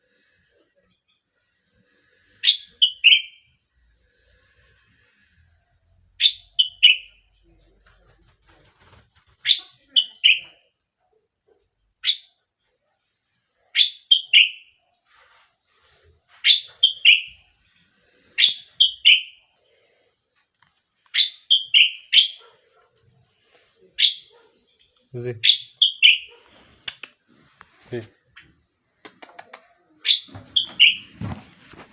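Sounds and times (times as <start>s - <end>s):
bird singing whistled notes: 30.1s - 31.1s.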